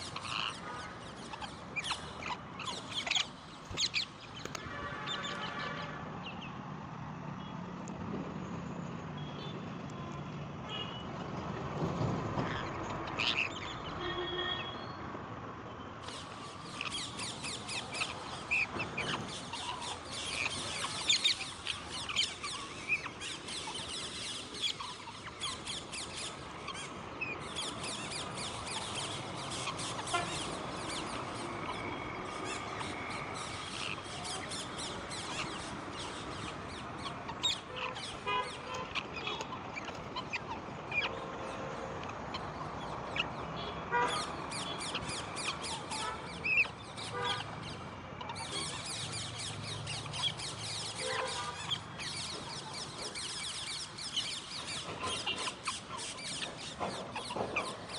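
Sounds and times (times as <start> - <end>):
parrots chattering: 0.0 - 5.2, 12.4 - 13.7, 16.0 - 41.2, 44.1 - 57.9.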